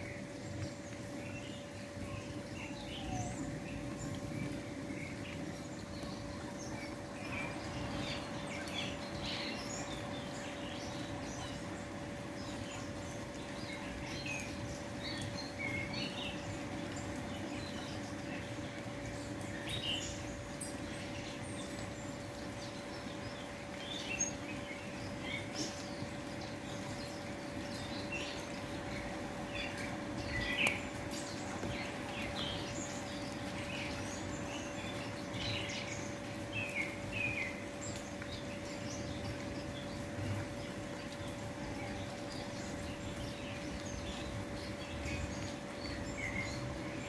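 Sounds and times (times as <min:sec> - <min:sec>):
faint constant hum: 0:00.0 - 0:47.0
small birds chirping: 0:00.0 - 0:47.0.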